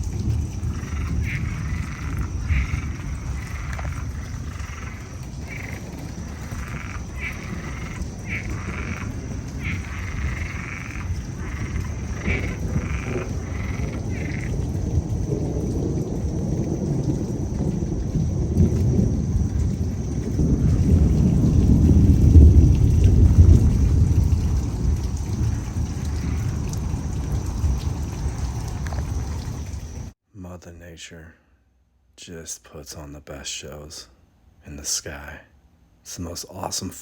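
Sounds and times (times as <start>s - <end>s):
rain: 0.0s - 30.2s
thunder rumbling: 0.0s - 30.2s
frogs calling in chorus: 0.5s - 21.0s, 25.2s - 30.1s.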